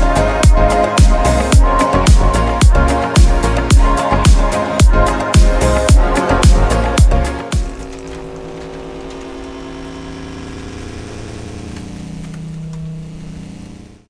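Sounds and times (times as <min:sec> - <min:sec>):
car engine idling: 0:04.9 - 0:14.0.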